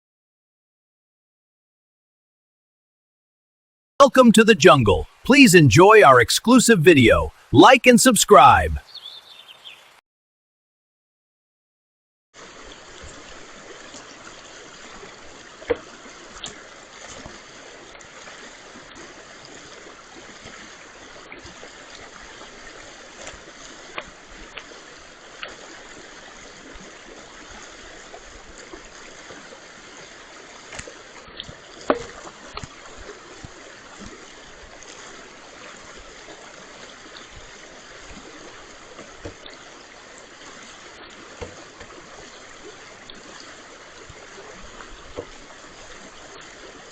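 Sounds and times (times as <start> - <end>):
brook running: 4.1 - 9.9.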